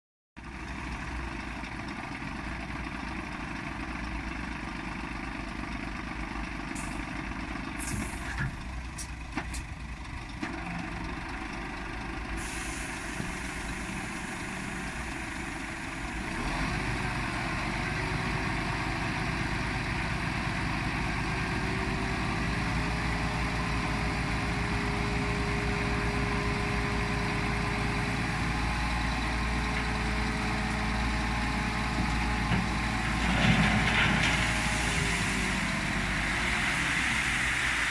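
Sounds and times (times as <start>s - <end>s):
truck diesel engine running: 0.4s - 37.9s
short air hisses: 7.8s - 8.4s, 12.4s - 14.8s.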